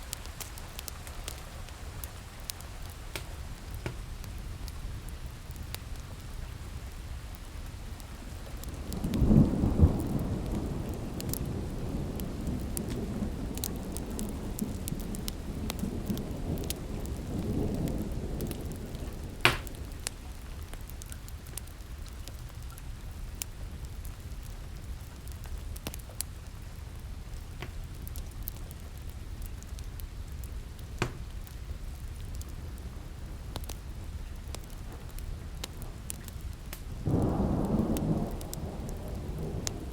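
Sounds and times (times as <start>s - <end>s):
steady rain: 0.0s - 39.9s
wood fire crackling: 0.0s - 39.9s
rumbling thunderclap: 8.6s - 20.1s, 37.0s - 39.9s.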